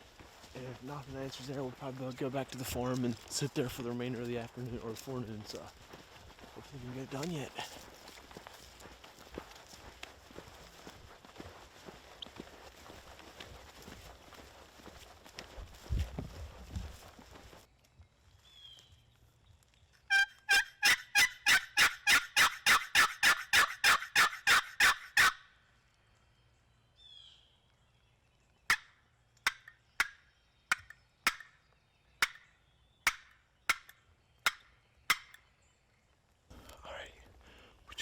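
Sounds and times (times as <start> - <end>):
turkey call yelps: 20.1 - 25.4.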